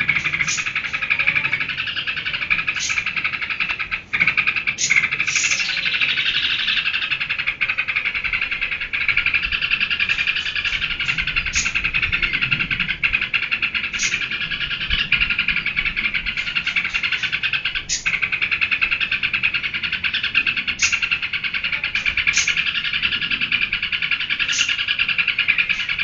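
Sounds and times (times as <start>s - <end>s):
bulbul chattering song: 0.0s - 26.0s.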